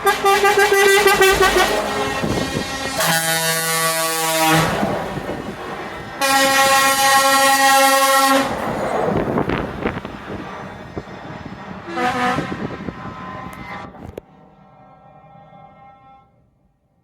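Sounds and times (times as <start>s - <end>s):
truck air horn blasts: 0.0s - 4.9s, 6.2s - 8.6s, 11.9s - 14.2s
passing vehicle rumble: 0.0s - 15.9s.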